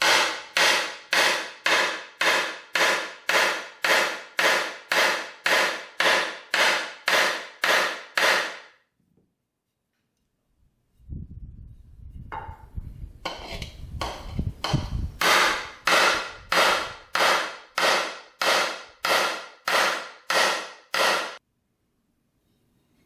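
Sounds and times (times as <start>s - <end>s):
hammer striking metal: 0.0s - 8.8s, 14.0s - 21.4s.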